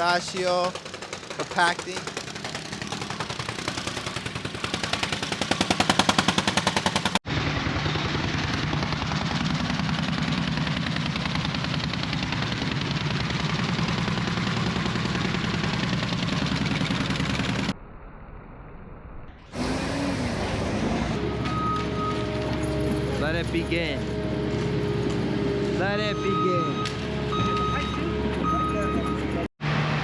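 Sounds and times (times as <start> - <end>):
soil compactor pounding gravel: 0.0 - 7.2.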